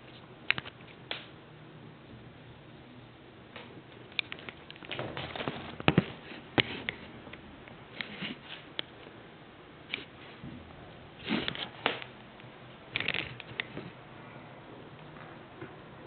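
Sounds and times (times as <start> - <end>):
kittens scuffling on hard floor: 4.8 - 6.9.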